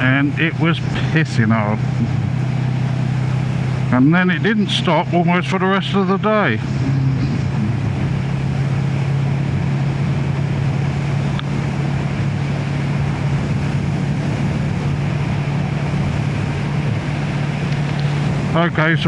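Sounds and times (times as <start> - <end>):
motorcycle engine running: 0.0 - 19.0
wind noise: 6.6 - 19.0.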